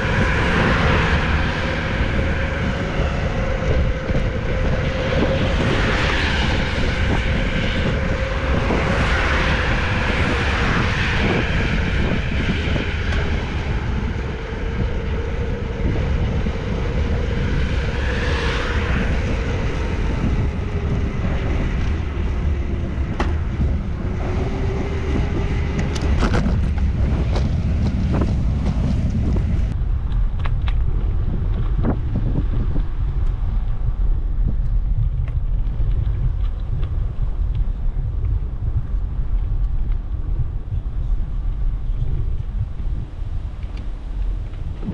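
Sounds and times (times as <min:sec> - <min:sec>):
road traffic passing: 0:00.0 - 0:29.8
wind rumbling on microphone: 0:00.0 - 0:44.9.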